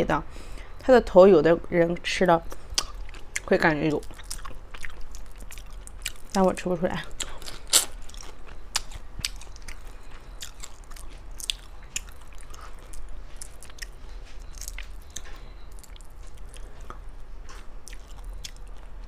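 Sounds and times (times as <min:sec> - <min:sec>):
wet chewing: 0:02.5 - 0:19.0
shrimp shells crunching: 0:07.1 - 0:13.8.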